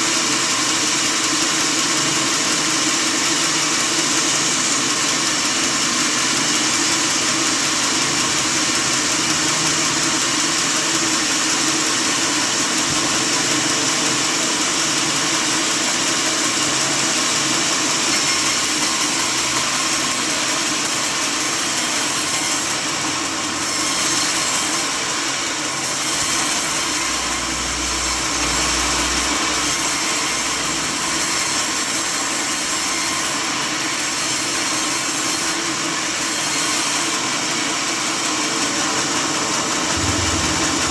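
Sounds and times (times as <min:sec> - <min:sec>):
sawmill machinery droning: 0:20.6 - 0:40.9
low rumble: 0:39.9 - 0:40.9.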